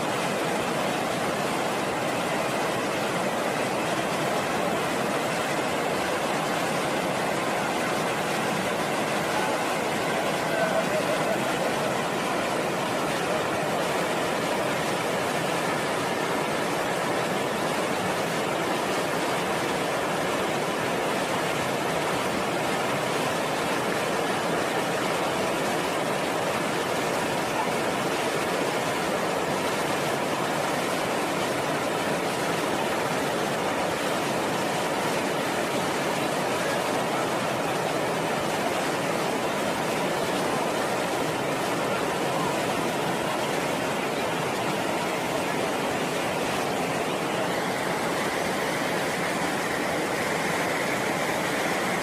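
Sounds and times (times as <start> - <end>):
fast-flowing river roaring: 0.0 - 52.0.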